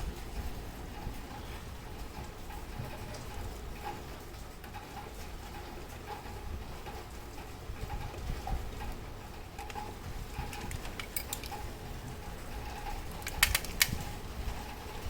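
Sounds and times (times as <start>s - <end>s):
clock movement clicks: 9.5s - 11.7s, 13.0s - 14.2s.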